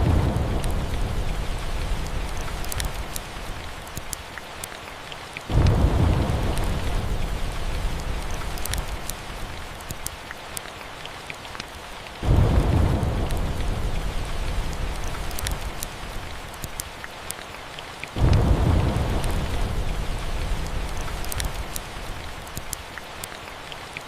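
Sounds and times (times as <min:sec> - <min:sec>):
thunder rolling: 0:00.0 - 0:03.1, 0:05.5 - 0:09.0, 0:12.2 - 0:15.8, 0:18.2 - 0:21.4
steady rain: 0:00.0 - 0:24.0
fireplace crackling: 0:05.5 - 0:10.2.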